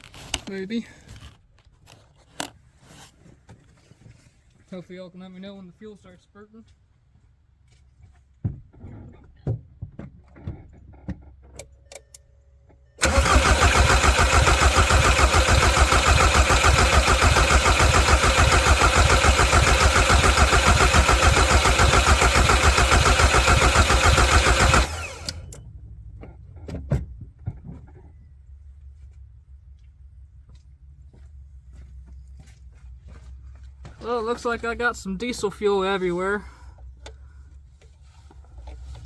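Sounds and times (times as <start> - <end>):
diesel engine cranking: 13.0 - 25.6.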